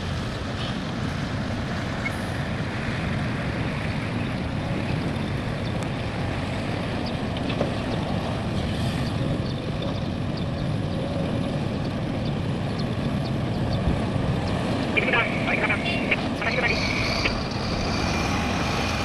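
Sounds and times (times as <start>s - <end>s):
heavy diesel machinery rumbling: 0.0s - 19.0s.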